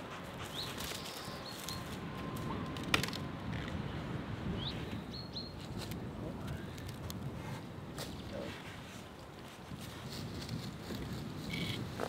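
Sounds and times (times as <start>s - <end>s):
outdoor background noise: 0.0s - 12.0s
songbird singing: 0.4s - 2.6s, 4.4s - 5.7s.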